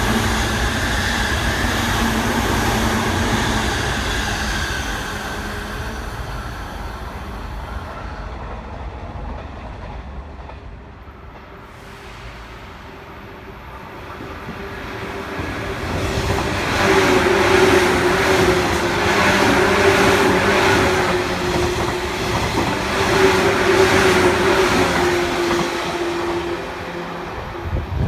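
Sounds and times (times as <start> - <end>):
electric train passing: 0.0 - 28.0
train wheels clattering on rails: 14.0 - 27.3.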